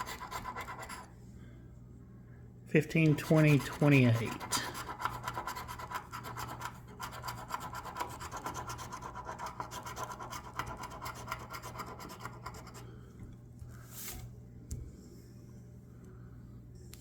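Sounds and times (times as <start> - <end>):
lottery ticket being scratched: 0.0 - 1.1, 2.8 - 12.8.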